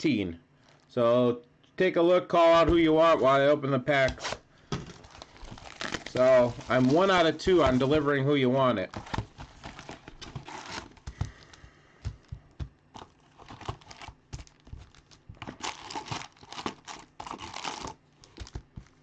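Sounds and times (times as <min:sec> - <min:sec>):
card pack wrappers tearing and crinkling: 0:04.1 - 0:08.0, 0:08.9 - 0:19.0.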